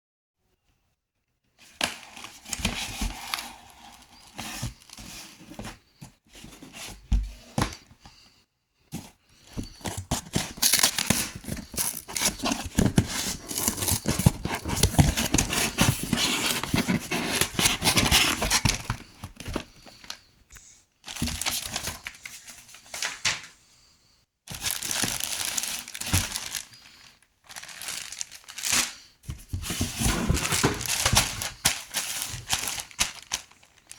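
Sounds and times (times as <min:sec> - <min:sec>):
packaging crinkling and rustling: 0:01.6 - 0:07.8, 0:09.4 - 0:20.3, 0:21.0 - 0:23.5, 0:24.5 - 0:33.9
packaging tearing: 0:27.5 - 0:29.0.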